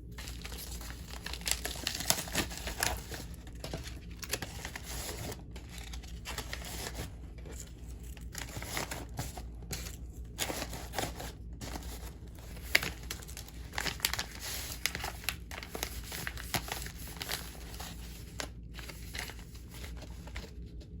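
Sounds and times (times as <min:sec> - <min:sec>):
packaging crinkling and rustling: 0:00.0 - 0:21.0
packaging tearing: 0:00.2 - 0:20.4.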